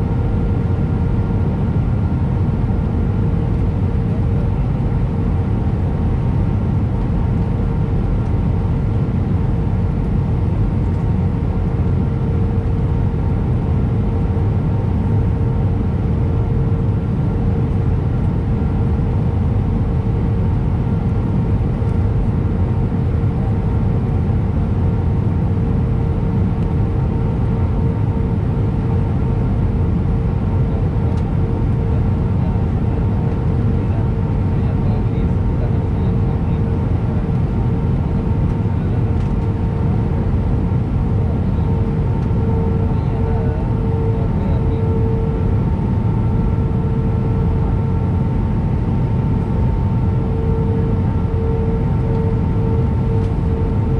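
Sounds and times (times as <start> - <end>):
airflow and jet engine rumble: 0.0 - 53.9
engine hum tone: 38.4 - 53.9.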